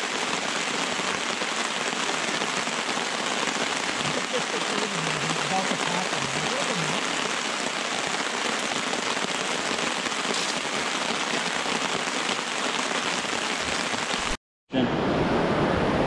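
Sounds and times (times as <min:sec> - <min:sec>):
rain pattering on tarp: 0:00.0 - 0:14.4.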